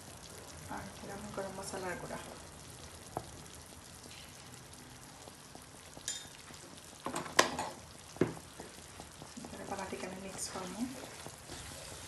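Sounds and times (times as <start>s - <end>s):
mince sizzling in a pan: 0.0s - 12.0s.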